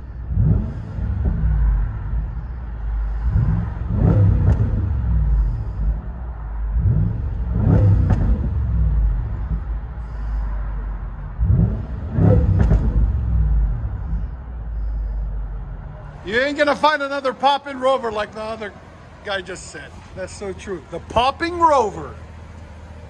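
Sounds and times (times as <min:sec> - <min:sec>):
car engine revving: 0:00.0 - 0:23.0
exhaust pop: 0:00.3 - 0:02.4, 0:03.1 - 0:10.2, 0:11.3 - 0:15.4.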